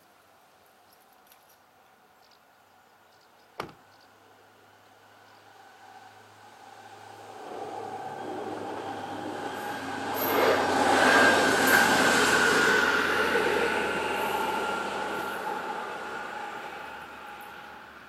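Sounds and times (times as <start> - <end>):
train passing: 4.4 - 18.0
high-pitched whine: 5.8 - 18.0.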